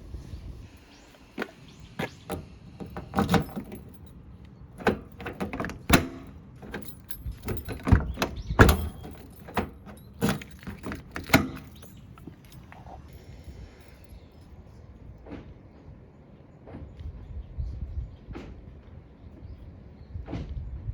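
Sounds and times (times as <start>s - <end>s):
keys jingling: 0.7s - 14.7s
door latch clicks and clunks: 1.3s - 13.1s.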